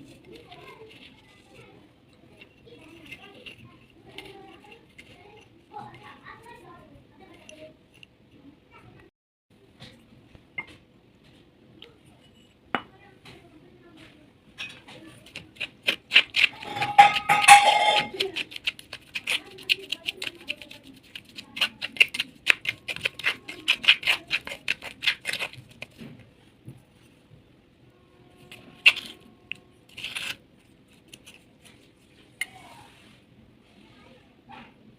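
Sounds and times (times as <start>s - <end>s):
baked clay cracking and crunching: 14.6s - 27.0s, 28.3s - 32.3s.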